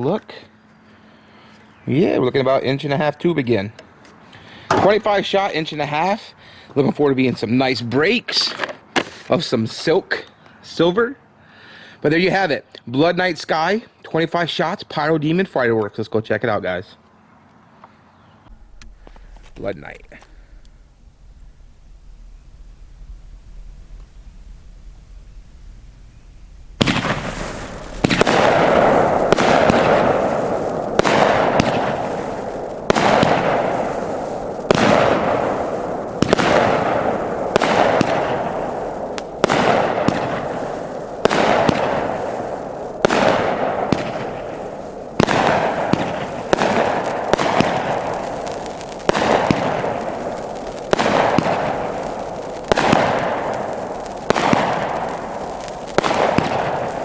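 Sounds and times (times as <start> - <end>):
firework crackle: 18.5 - 57.0
firework shots: 18.5 - 57.0.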